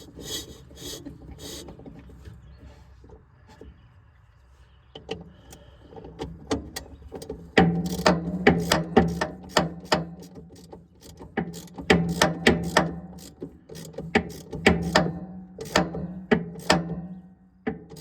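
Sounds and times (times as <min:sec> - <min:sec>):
sharp metallic clicks and knocks: 0:06.2 - 0:18.0.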